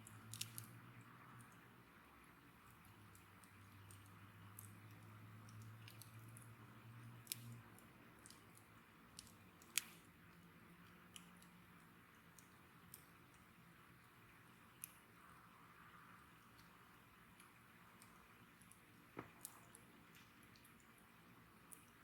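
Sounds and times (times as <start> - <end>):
faint low hum: 0.0 - 22.0
bonfire crackling: 1.5 - 22.0.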